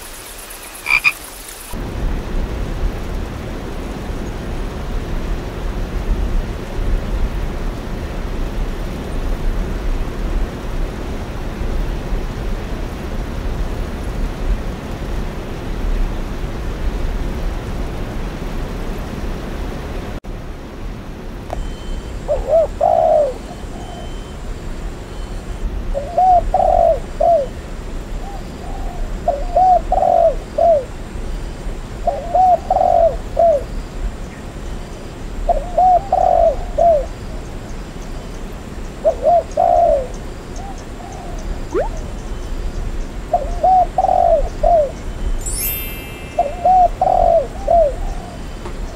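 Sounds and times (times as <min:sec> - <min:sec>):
steady rain: 0:00.0 - 0:21.6
dove cooing: 0:22.3 - 0:24.0, 0:26.0 - 0:27.5, 0:35.8 - 0:37.1, 0:39.1 - 0:40.1, 0:43.4 - 0:44.9, 0:46.4 - 0:48.4.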